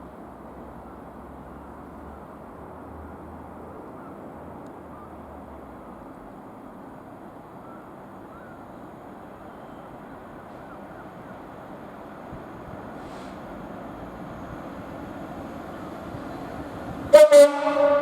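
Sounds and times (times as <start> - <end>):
faint bird chirps: 7.6 - 11.6.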